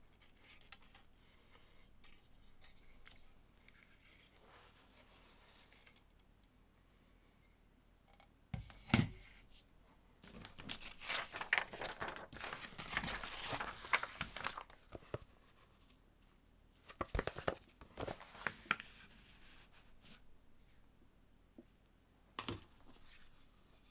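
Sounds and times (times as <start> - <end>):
plastic crinkling rustle: 10.3 - 15.3.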